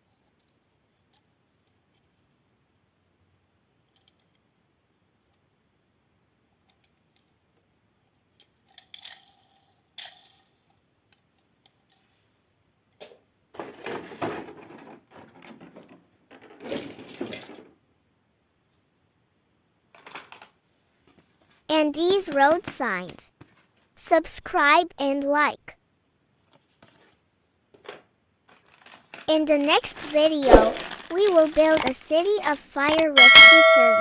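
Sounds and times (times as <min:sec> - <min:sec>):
plastic toys clicking and clattering: 0:08.3 - 0:12.2, 0:13.0 - 0:17.7, 0:19.9 - 0:21.2, 0:27.7 - 0:33.1.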